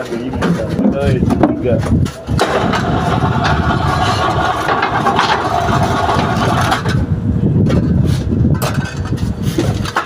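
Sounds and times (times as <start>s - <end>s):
engine rumbling: 0.0s - 10.0s
machine clanks: 2.4s - 7.0s.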